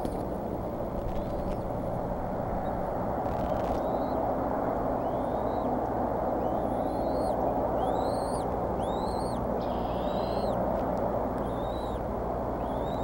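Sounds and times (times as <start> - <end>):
steady rushing noise: 0.0 - 13.0
bird chirping: 1.1 - 1.6, 3.3 - 4.2, 5.0 - 5.7, 6.4 - 10.6, 11.4 - 12.0, 12.6 - 13.0.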